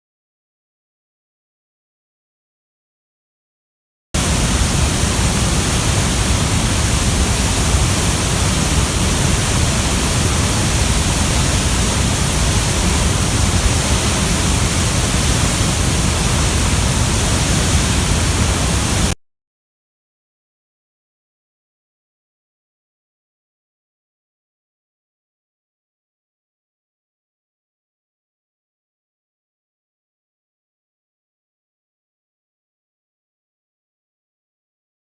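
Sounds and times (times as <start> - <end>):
waterfall rushing: 4.2 - 19.2.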